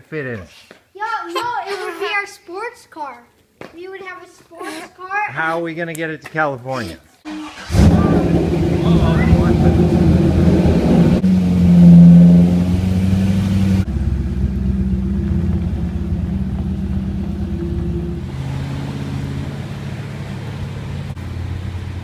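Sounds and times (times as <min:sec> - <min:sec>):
car engine running: 0:07.4 - 0:22.0.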